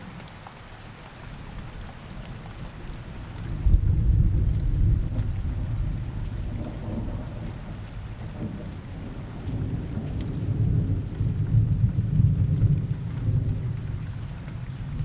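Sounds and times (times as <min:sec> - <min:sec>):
steady rain: 0:00.0 - 0:15.0
rolling thunder: 0:03.5 - 0:14.0.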